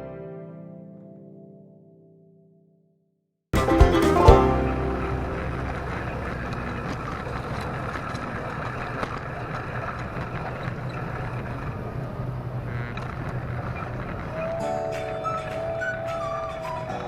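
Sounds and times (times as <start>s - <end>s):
model train rumbling hum: 5.4s - 13.4s.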